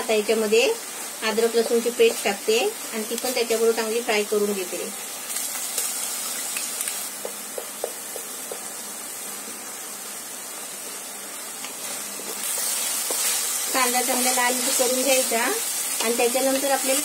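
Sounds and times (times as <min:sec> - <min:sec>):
paste sizzling in oil: 0:00.0 - 0:17.0
spatula scraping and tapping: 0:11.6 - 0:13.5.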